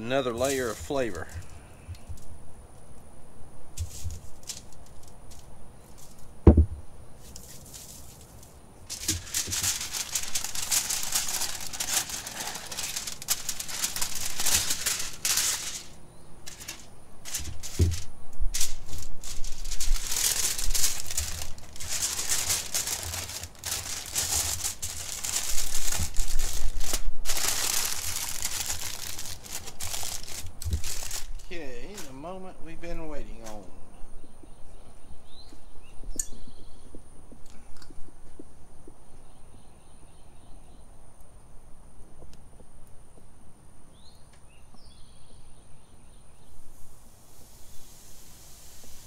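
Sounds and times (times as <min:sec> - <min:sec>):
aluminium foil crinkling: 0:03.8 - 0:06.3, 0:07.2 - 0:32.2.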